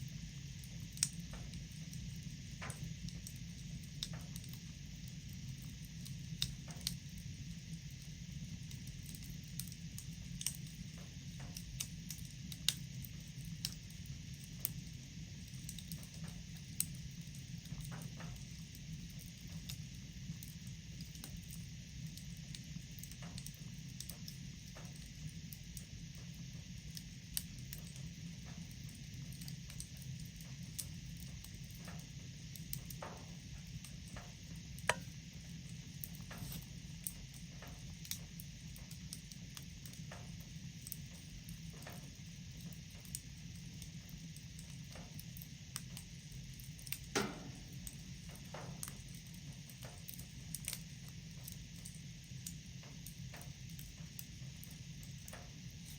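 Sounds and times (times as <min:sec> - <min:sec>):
wood fire crackling: 0:00.0 - 0:55.9
sharp snap of fire: 0:00.9 - 0:01.9, 0:06.0 - 0:07.0, 0:30.8 - 0:35.2, 0:36.0 - 0:40.2, 0:46.8 - 0:49.1.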